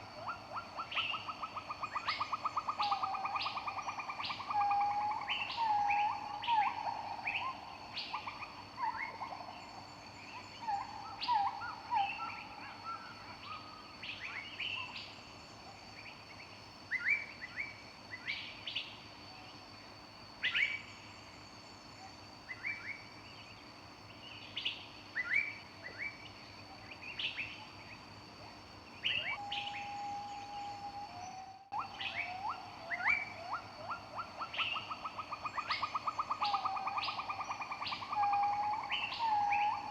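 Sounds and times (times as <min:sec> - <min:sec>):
lower whistled bird notes: 0:29.0 - 0:39.9.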